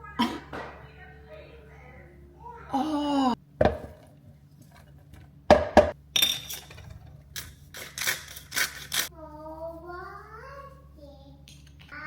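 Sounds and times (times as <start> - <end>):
crockery and utensils clinking: 3.6 - 9.1.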